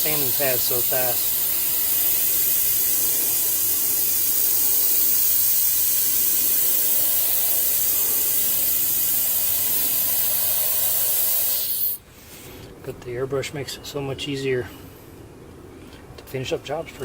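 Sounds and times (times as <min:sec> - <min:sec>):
airbrush hissing: 0:00.0 - 0:12.0.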